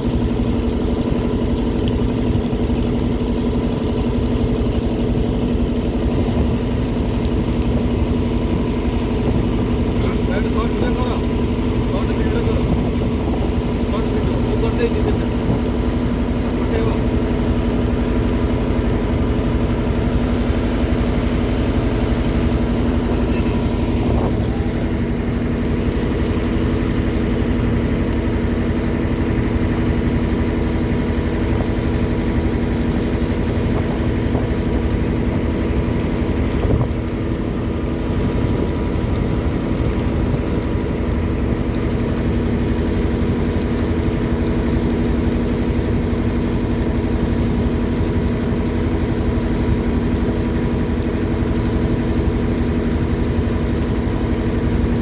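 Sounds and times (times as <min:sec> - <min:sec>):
motorboat engine running: 0:00.0 - 0:55.0.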